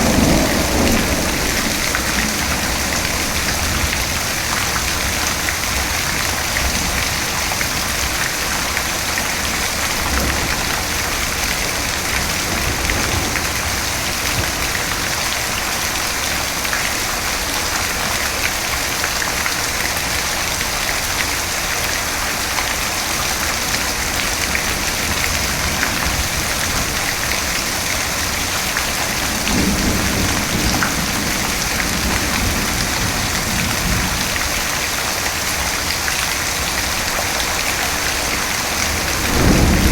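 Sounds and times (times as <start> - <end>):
low rumble of thunder: 0.0 - 16.6, 24.0 - 34.9, 36.9 - 39.9
heavy rain falling: 0.0 - 39.9.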